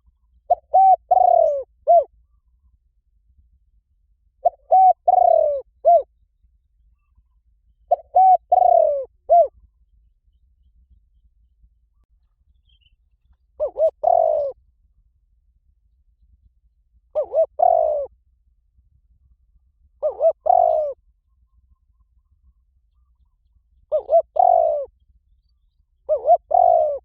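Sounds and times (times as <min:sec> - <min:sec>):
dove cooing: 0:00.0 - 0:02.2, 0:04.4 - 0:06.1, 0:07.9 - 0:09.6, 0:13.6 - 0:14.6, 0:17.1 - 0:18.1, 0:20.0 - 0:21.0, 0:23.9 - 0:25.0, 0:26.1 - 0:27.0
faint low hum: 0:00.0 - 0:27.0.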